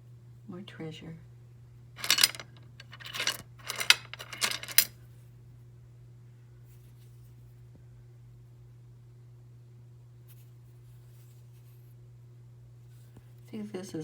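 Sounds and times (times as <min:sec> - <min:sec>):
small stones clinking: 0:02.0 - 0:04.9.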